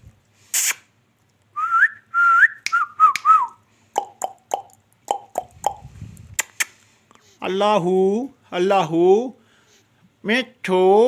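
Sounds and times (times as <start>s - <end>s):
parrot clicking chirps: 4.0s - 6.8s.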